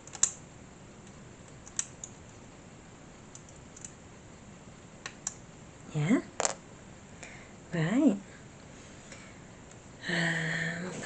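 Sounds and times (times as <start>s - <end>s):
small parts clicking and tapping: 0.0s - 0.4s, 1.0s - 2.2s.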